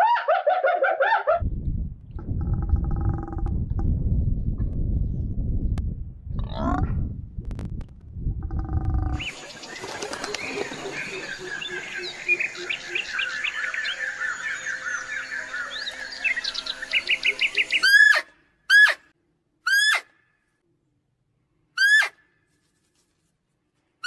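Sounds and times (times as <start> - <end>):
birds chirping and trilling: 8.5 - 19.0.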